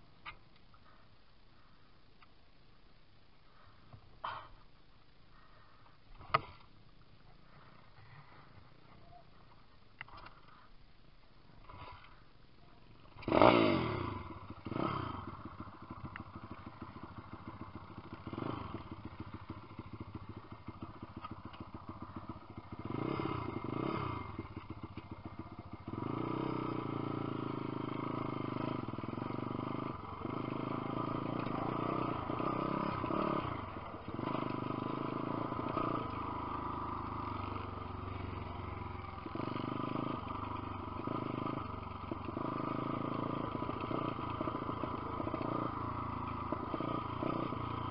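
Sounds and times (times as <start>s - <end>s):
motorbike engine revving: 13.1s - 47.9s.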